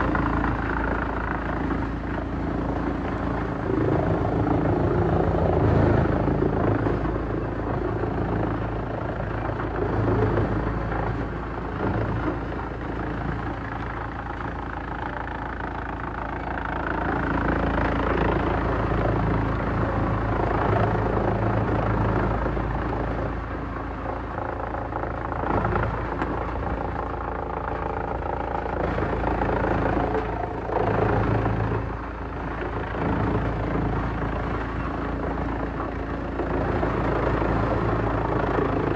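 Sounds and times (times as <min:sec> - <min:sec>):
wood shredder droning: 0:16.4 - 0:38.9.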